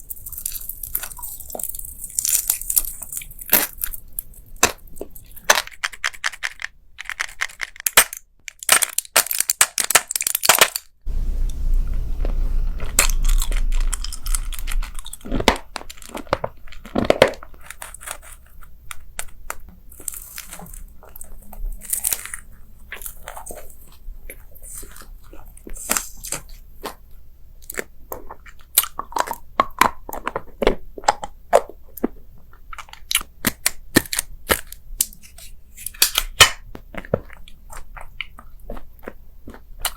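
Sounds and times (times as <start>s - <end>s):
crunching bites and chewing: 0.0s - 6.0s, 12.0s - 39.9s
low rumble: 11.1s - 16.1s.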